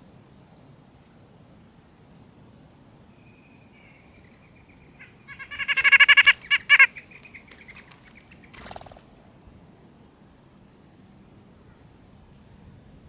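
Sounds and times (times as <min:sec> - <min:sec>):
bird harsh buzzy calls: 0:04.2 - 0:09.0.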